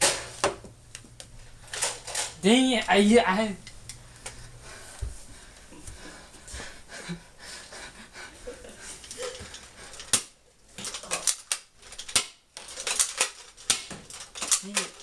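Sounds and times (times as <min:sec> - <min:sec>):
toy blaster clicks and knocks: 0:10.8 - 0:15.0.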